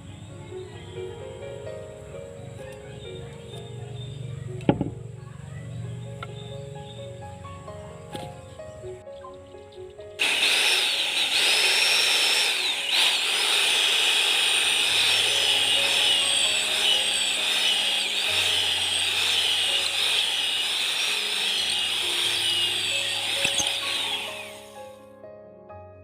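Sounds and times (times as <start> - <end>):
power tool whining on wood: 10.2 - 24.9.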